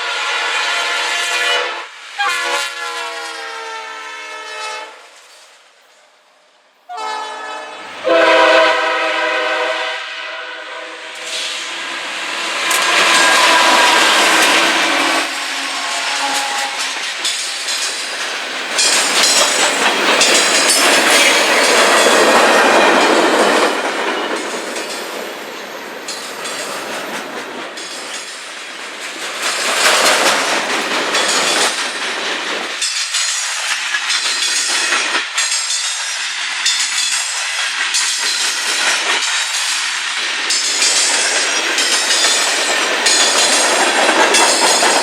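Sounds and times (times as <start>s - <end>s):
train horn: 0.0s - 5.2s, 6.9s - 11.9s, 12.6s - 17.0s
train wheels clattering on rails: 11.2s - 45.0s.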